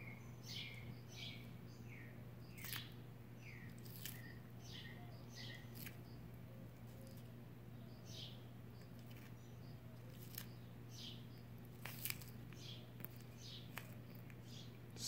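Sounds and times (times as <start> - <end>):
small birds chirping: 0.0 - 15.0
steady low hum: 0.0 - 15.0
turtle crunching lettuce: 2.4 - 4.6, 5.4 - 7.4, 8.7 - 14.5.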